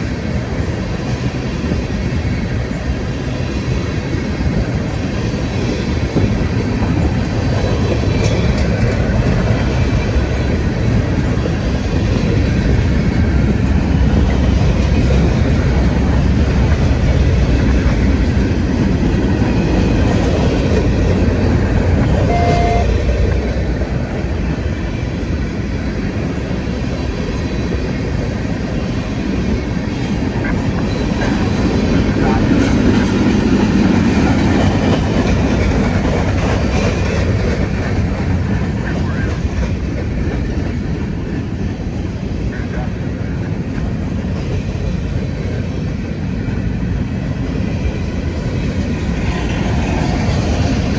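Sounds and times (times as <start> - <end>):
freight train cars rumbling past: 0.0 - 50.9
short tone: 22.3 - 23.0
wheels clacking over rail joints: 29.3 - 45.2.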